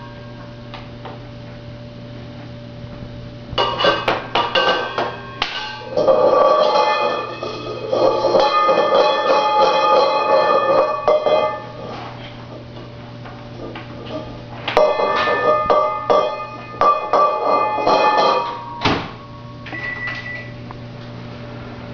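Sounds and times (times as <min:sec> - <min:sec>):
bowl knocks with ringing tone: 0:14.8 - 0:18.9.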